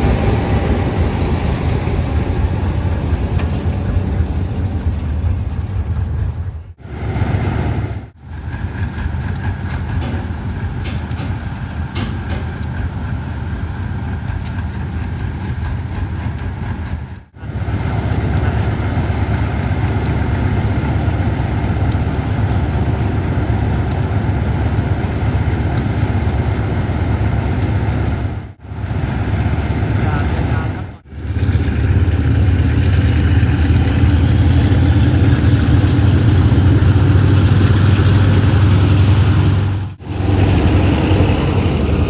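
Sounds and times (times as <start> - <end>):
diesel train engine rumbling: 0.0 - 42.0.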